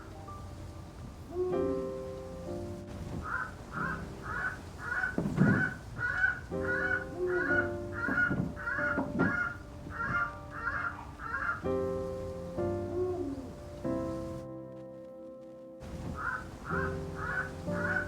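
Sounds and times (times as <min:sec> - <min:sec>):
soft background music: 0:00.0 - 0:18.0
bird calling in short calls: 0:03.2 - 0:11.6.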